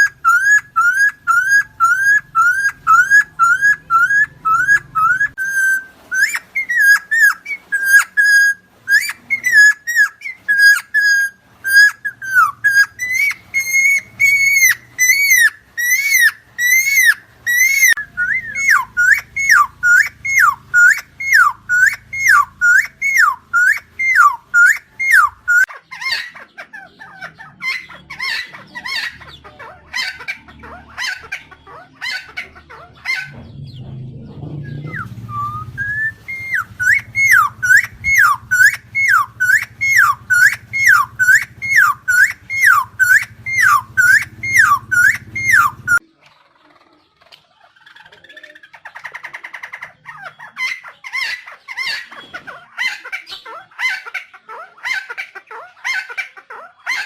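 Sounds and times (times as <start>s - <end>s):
bird singing whistled notes: 0.0s - 25.7s, 33.2s - 46.0s
scratchy bird calls: 0.0s - 57.0s.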